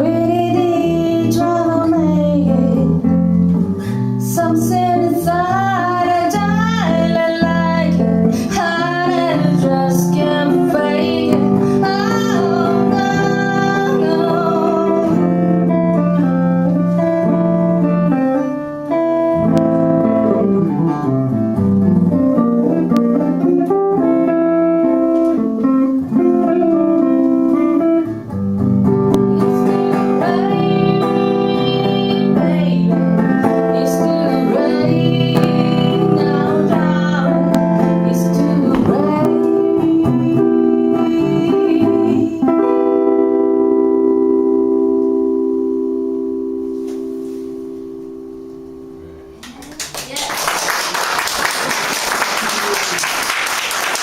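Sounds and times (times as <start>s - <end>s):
guitar playing: 0.0s - 49.9s
person singing: 4.3s - 15.7s, 29.2s - 43.1s.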